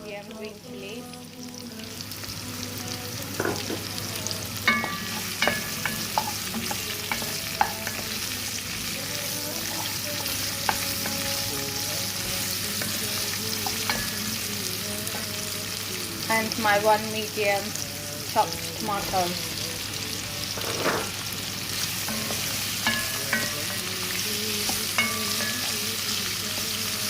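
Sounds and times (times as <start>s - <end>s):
food sizzling in oil: 0.0s - 27.0s
spoon knocking against pan: 3.4s - 3.9s, 4.7s - 8.3s, 12.8s - 14.3s, 22.1s - 24.0s, 24.7s - 26.0s.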